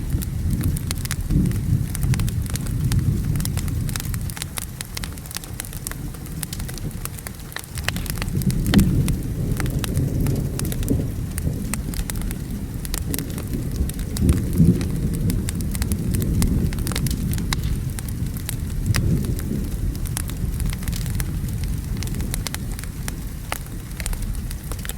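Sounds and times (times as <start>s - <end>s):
rain hiss: 0.0s - 24.9s
rolling thunder rumble: 0.0s - 24.9s
wood fire crackling: 0.0s - 24.9s.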